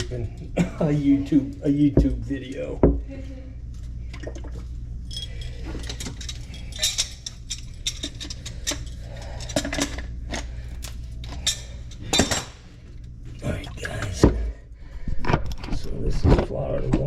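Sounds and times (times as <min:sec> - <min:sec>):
steady low hum: 0:00.0 - 0:17.0
tools clattering and clicking: 0:05.1 - 0:12.6.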